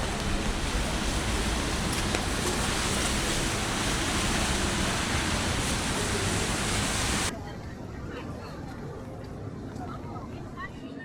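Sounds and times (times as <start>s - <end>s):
heavy rain: 0.0s - 7.3s
gusting wind: 0.0s - 10.7s
wind rumble on microphone: 0.0s - 10.7s.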